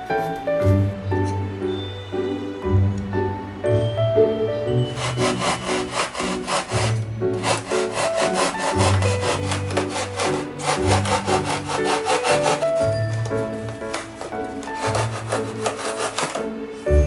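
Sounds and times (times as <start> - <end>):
background music: 0.0 - 17.0
rasping sawing strokes: 4.8 - 16.9.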